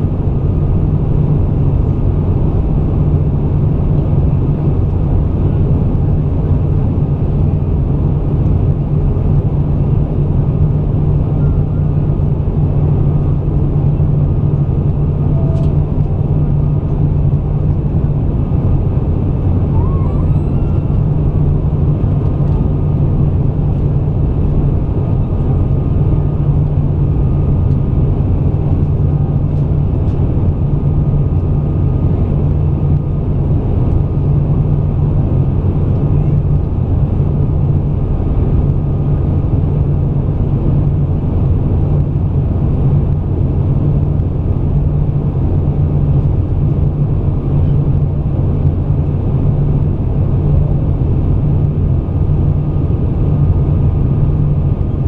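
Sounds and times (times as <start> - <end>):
airplane cabin drone: 0.0 - 55.0
faint steady whine: 0.0 - 55.0.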